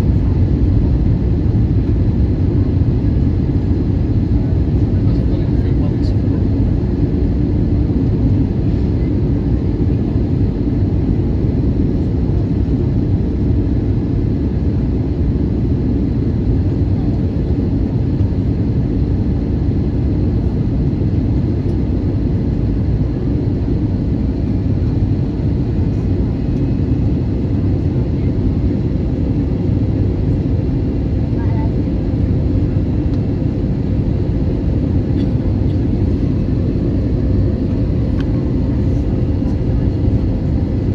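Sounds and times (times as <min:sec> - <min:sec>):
airliner cabin engine rumble: 0:00.0 - 0:40.9.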